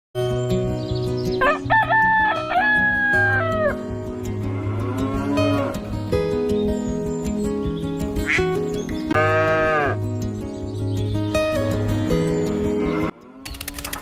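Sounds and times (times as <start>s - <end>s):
background music: 0.2s - 14.0s
rooster crowing: 1.4s - 3.8s
farm animal call: 8.2s - 10.1s.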